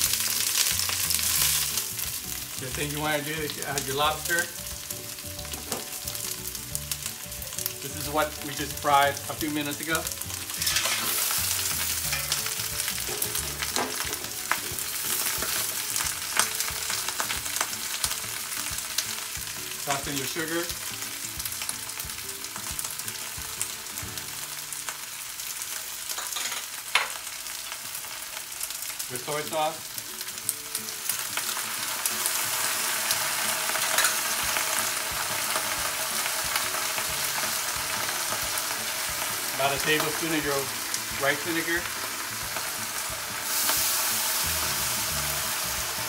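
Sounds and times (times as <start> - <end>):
food sizzling in hot oil: 0.0 - 46.0
metal spatula scraping pan: 10.6 - 13.7.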